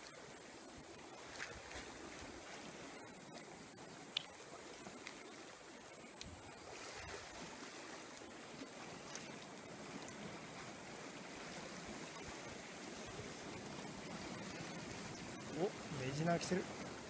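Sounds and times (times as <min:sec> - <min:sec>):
sea waves washing: 0:00.0 - 0:17.0
faint clicks: 0:04.1 - 0:04.4, 0:06.1 - 0:06.4.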